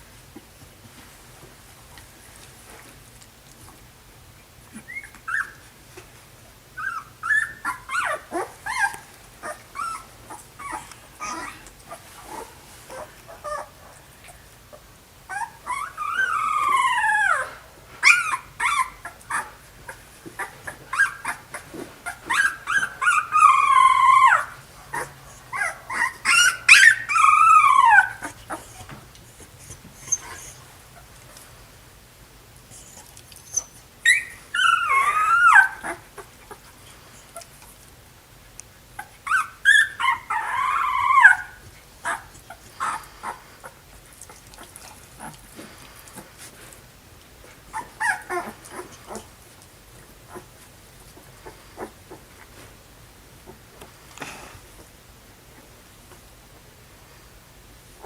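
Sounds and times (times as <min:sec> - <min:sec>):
puppies whining and yelping: 0:04.7 - 0:05.8, 0:06.8 - 0:31.1, 0:32.7 - 0:37.7, 0:38.9 - 0:46.6, 0:47.4 - 0:52.7.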